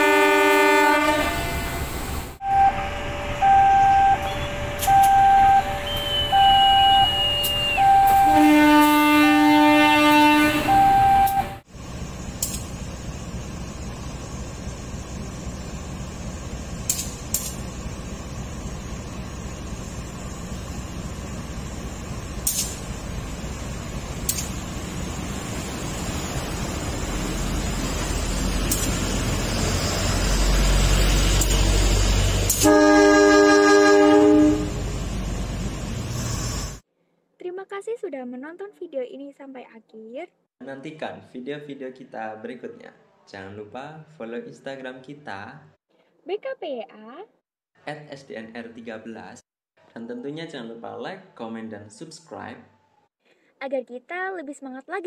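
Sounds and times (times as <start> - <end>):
locomotive horn blast: 0.0 - 11.6, 31.2 - 35.1
diesel locomotive rumbling: 0.0 - 36.8
two-tone warning alarm: 2.4 - 11.6.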